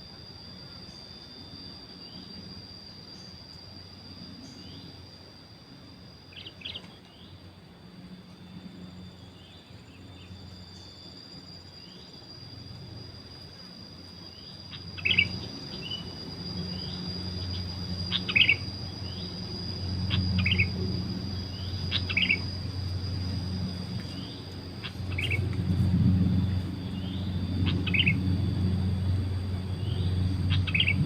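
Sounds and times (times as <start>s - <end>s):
high insect drone: 0.0s - 31.0s
low hum: 0.0s - 31.0s
bulbul calls: 14.7s - 16.0s, 16.8s - 19.2s, 20.0s - 20.8s, 21.5s - 22.6s, 24.1s - 25.6s, 26.9s - 28.2s, 29.8s - 31.0s.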